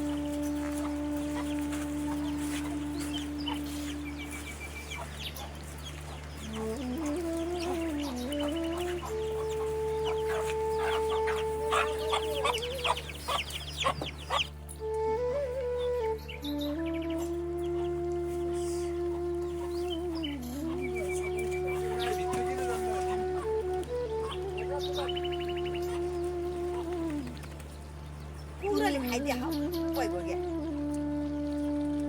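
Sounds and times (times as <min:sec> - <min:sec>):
flute-like background music: 0:00.0 - 0:32.0
chickens clucking: 0:00.8 - 0:14.5.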